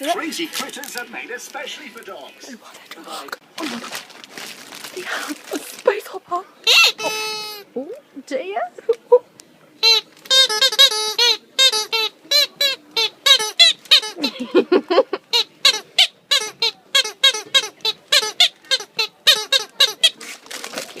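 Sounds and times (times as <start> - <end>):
squeaky dog toy squeaks: 6.6 - 7.7, 9.8 - 14.4, 15.3 - 20.6.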